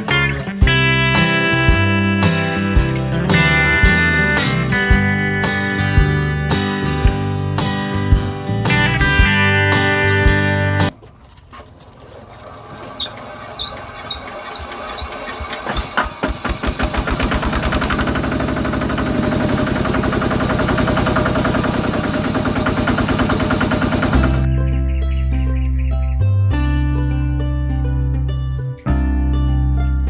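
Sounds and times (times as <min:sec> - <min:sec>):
small engine starting: 0:12.0 - 0:24.5.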